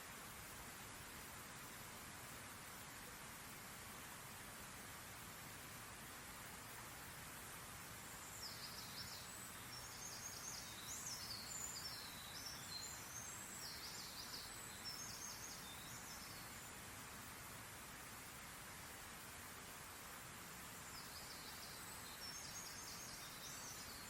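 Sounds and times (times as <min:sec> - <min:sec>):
faint steady hiss: 0:00.0 - 0:24.0
songbird chirping and trilling: 0:08.0 - 0:16.7.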